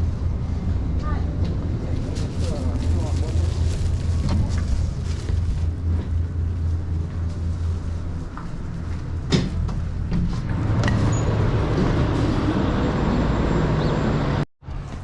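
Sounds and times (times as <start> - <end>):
truck engine idling: 1.5 - 10.6.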